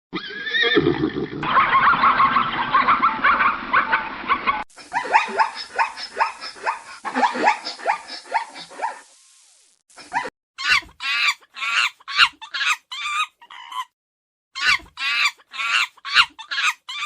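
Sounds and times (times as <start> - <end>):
animal calls: 0.2 - 9.1, 10.1 - 13.9, 14.6 - 17.0.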